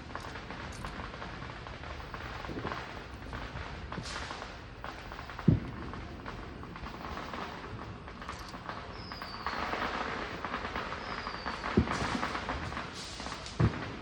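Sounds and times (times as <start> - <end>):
dull firework boom: 0.0 - 14.0
fireworks crackling hiss: 0.0 - 14.0
falling whistles: 8.8 - 9.9, 10.8 - 12.4.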